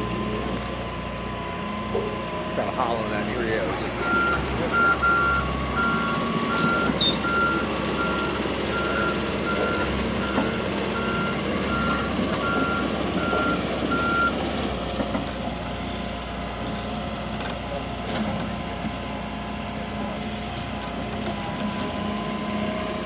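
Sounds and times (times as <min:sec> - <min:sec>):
heavy machine engine running: 0:00.0 - 0:23.0
backup alarm beeping: 0:04.0 - 0:14.3.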